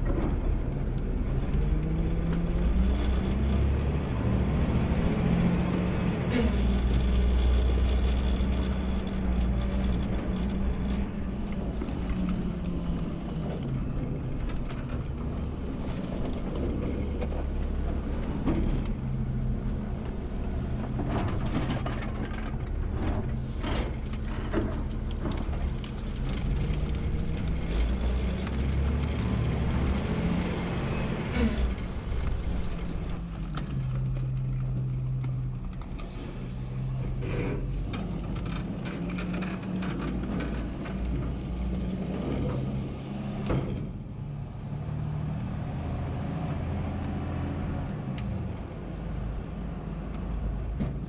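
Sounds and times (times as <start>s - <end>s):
garbage truck engine running: 2.7s - 33.4s.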